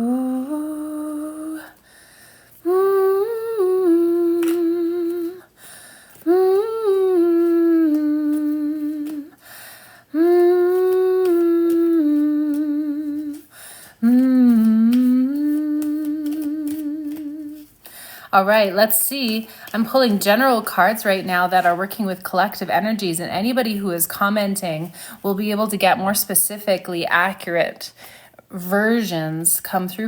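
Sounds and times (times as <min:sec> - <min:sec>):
woman singing long held notes: 0:00.0 - 0:01.9, 0:02.6 - 0:21.8
breaths: 0:01.6 - 0:02.7, 0:05.4 - 0:06.3, 0:09.0 - 0:10.4, 0:13.3 - 0:14.7, 0:17.6 - 0:18.4, 0:19.4 - 0:19.7, 0:24.9 - 0:25.3, 0:27.9 - 0:28.5.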